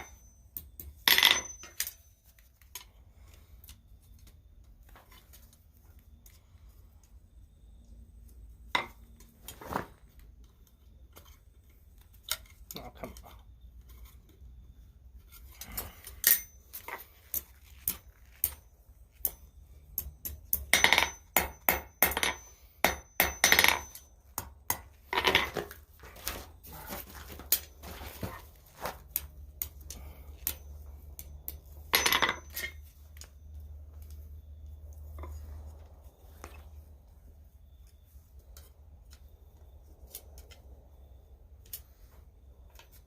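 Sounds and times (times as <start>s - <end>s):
low steady hum: 0.0s - 43.0s
hammer striking steel on anvil: 19.2s - 24.9s.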